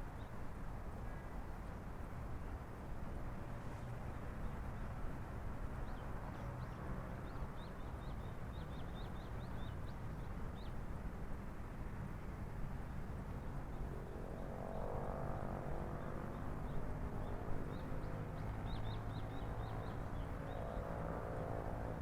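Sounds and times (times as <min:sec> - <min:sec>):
low city hum: 0:11.6 - 0:22.0.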